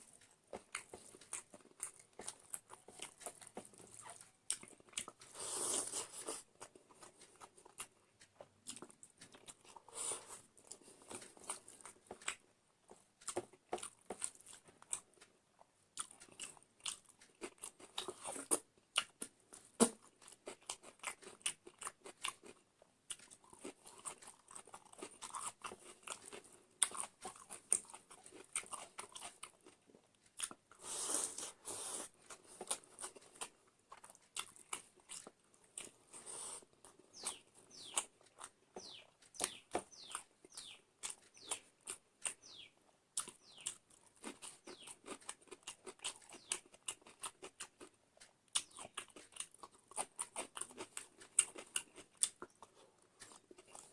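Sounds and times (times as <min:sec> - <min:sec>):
person chewing and crunching: 0:00.0 - 0:53.9.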